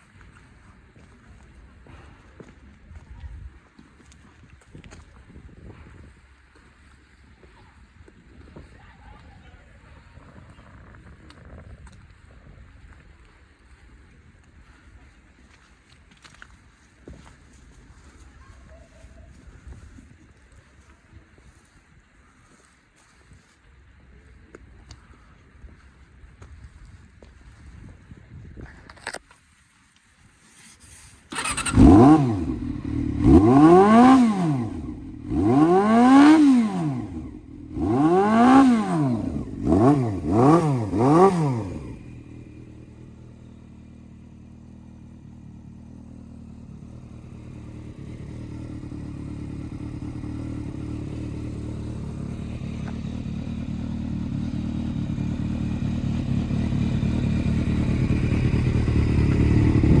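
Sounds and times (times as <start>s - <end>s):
motorcycle engine revving and idling: 31.3s - 60.0s.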